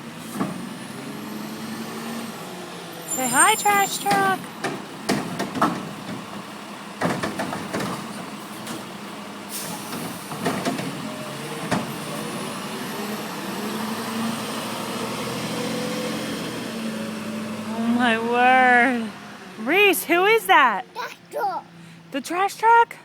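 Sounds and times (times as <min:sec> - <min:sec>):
truck engine revving: 0:00.0 - 0:19.7
garbage truck clanks and knocks: 0:00.2 - 0:00.8, 0:04.1 - 0:12.2.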